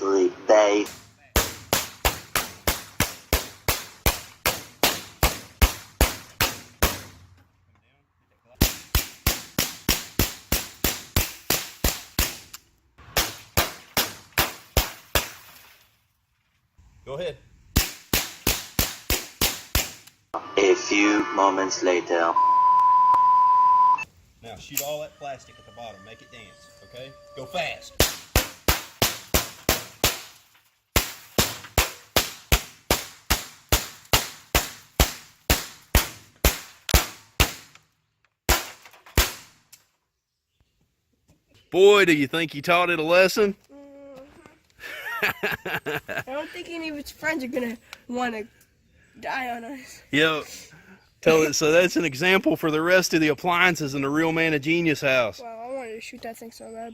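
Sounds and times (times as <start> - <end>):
rapid gunshots: 0.9 - 7.1.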